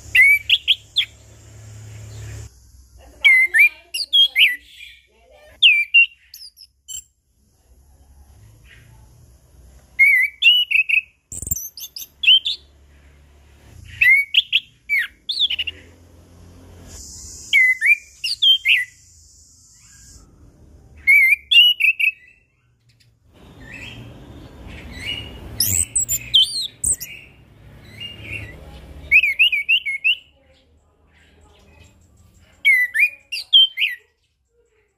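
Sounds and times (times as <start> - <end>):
thrush singing whistled phrases: 0.0 - 1.2, 3.2 - 7.1, 10.0 - 12.7, 13.8 - 15.8, 17.0 - 20.4, 21.0 - 22.6, 23.6 - 30.4.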